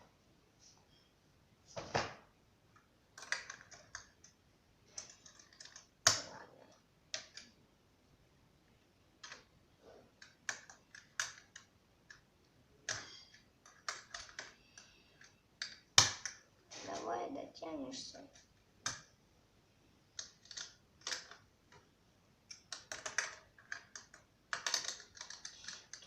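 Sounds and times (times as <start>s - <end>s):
plastic parts clicking: 2.7s - 7.6s, 9.2s - 9.5s, 10.1s - 16.4s, 20.1s - 26.0s.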